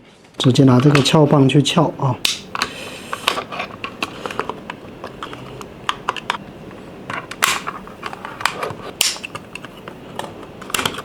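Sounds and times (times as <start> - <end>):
plastic clicks and scrapes: 2.6 - 6.4, 7.1 - 11.0.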